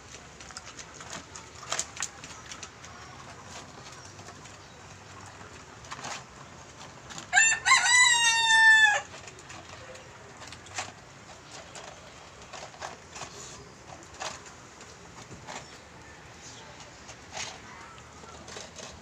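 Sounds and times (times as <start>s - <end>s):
rooster crowing: 7.3s - 9.1s.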